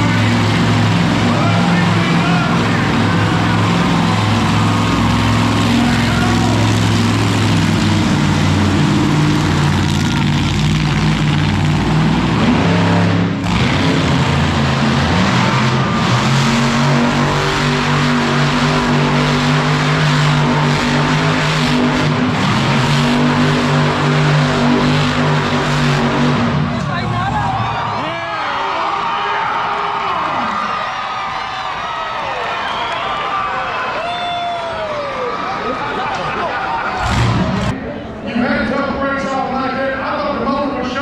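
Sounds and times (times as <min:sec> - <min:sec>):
monster truck engine running loudly: 0:00.0 - 0:28.0, 0:35.4 - 0:37.9.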